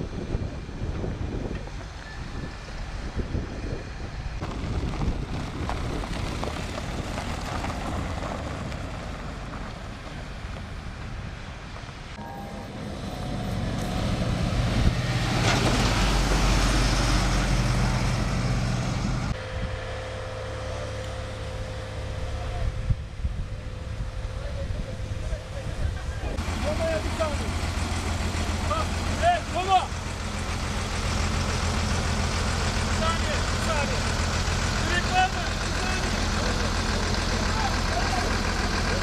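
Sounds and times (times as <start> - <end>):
wind buffeting microphone: 0.0 - 12.2, 12.9 - 19.9, 22.6 - 26.4
vehicle engine running: 0.0 - 39.0.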